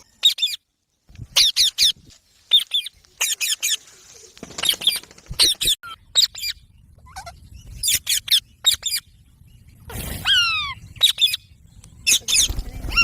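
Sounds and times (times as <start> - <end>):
parakeets chirping shrilly: 10.2 - 13.0.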